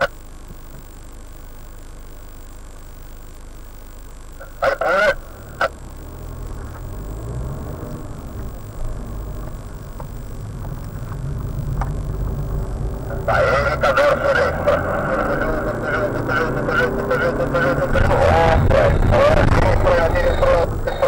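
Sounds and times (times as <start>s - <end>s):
car engine accelerating: 5.3s - 21.0s.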